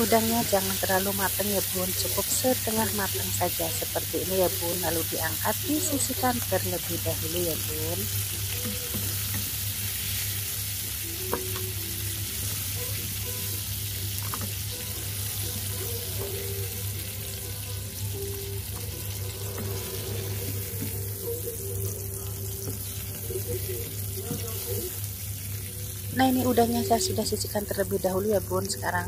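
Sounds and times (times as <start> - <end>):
shrimp sizzling in hot oil: 0.0 - 29.0
wooden spatula stirring in pan: 18.7 - 21.2.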